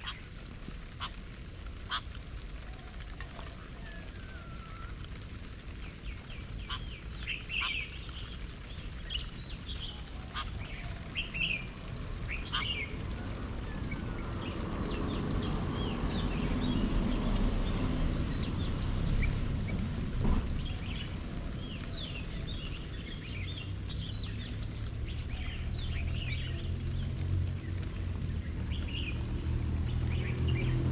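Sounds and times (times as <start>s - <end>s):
garden birds chirping: 0.0s - 30.9s
low rumble: 11.0s - 30.9s.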